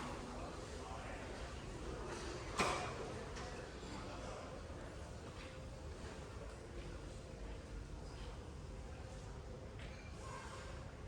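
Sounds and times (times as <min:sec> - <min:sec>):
ventilation hum and hiss: 0:00.0 - 0:02.0.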